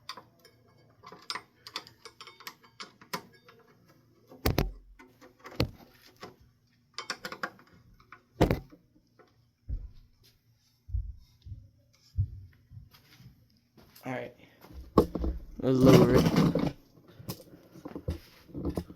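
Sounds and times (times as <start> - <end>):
hard parts knocking together: 4.4 - 5.8, 8.4 - 8.7, 14.8 - 18.9.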